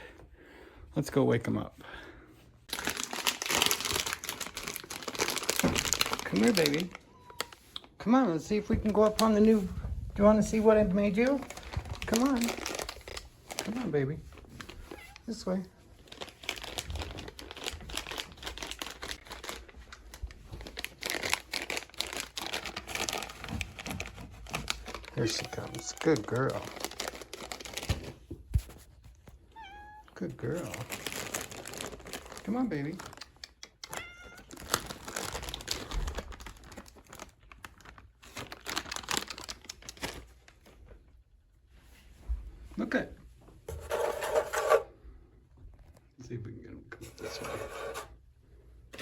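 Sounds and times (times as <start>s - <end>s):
plastic bag crinkling: 2.7s - 28.5s, 30.4s - 40.9s.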